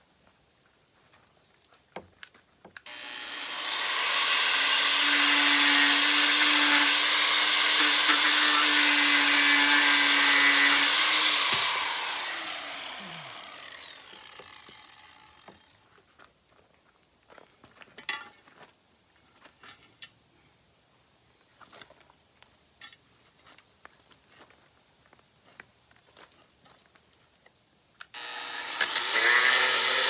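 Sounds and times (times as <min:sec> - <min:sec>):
electric grinder running: 0:02.9 - 0:15.6, 0:28.2 - 0:30.0.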